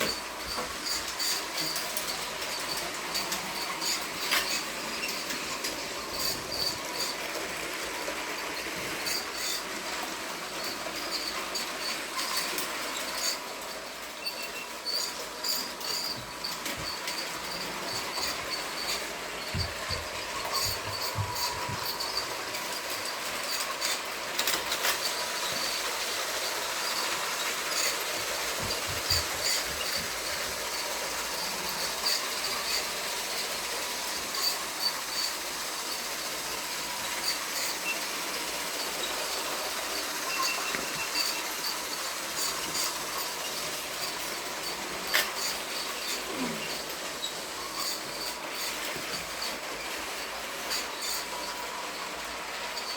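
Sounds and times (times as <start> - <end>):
toy train whirring: 0.0 - 52.9
light clicks of toy train: 22.5 - 29.4, 42.5 - 47.4.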